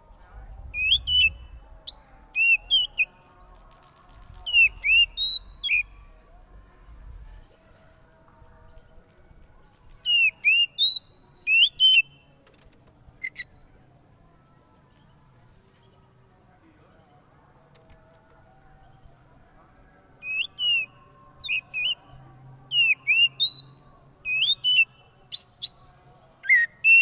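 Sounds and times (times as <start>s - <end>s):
bird whistled calls: 4.5s - 5.9s, 26.5s - 27.0s.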